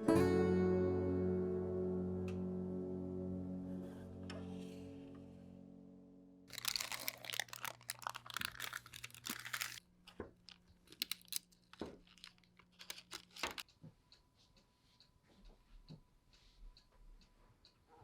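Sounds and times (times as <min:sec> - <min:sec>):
crinkling and rustling handling noise: 0:06.5 - 0:13.7.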